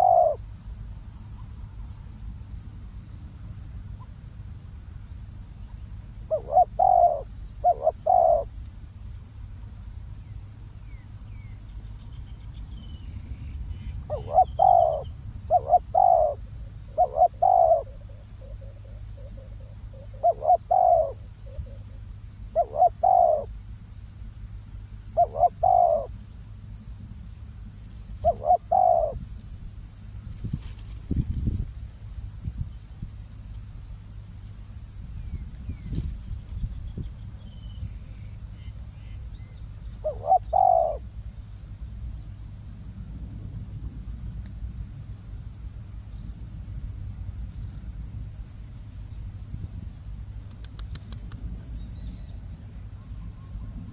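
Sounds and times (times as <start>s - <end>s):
dove cooing: 0.0s - 0.4s, 6.3s - 8.5s, 13.8s - 23.6s, 25.1s - 26.2s, 28.2s - 29.2s, 38.6s - 41.2s
low steady rumble: 0.0s - 53.9s.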